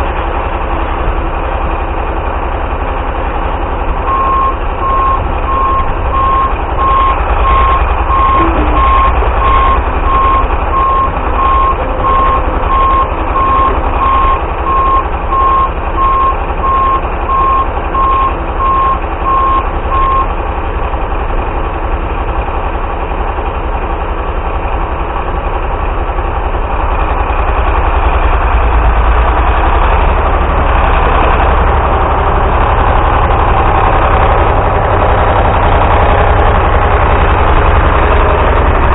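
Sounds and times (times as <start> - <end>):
diesel engine running: 0.0 - 38.9
rapid beeping alarm: 4.1 - 20.3.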